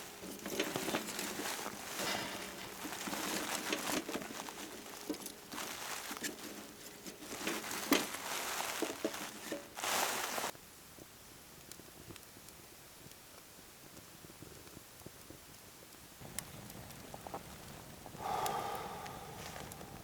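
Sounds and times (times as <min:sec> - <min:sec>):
crinkling and rustling handling: 0:00.0 - 0:10.6, 0:16.2 - 0:20.0
loud rush of rustling: 0:00.0 - 0:10.6.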